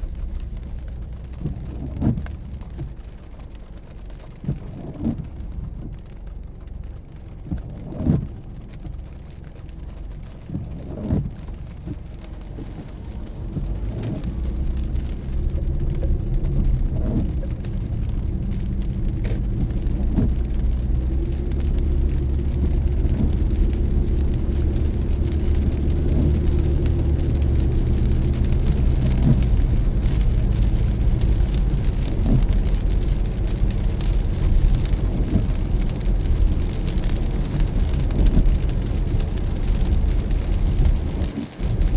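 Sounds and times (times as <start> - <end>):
engine and road noise: 0.0 - 41.9
rain on a car: 0.0 - 41.9
windshield wiper swipe: 7.5 - 9.0, 10.2 - 41.9.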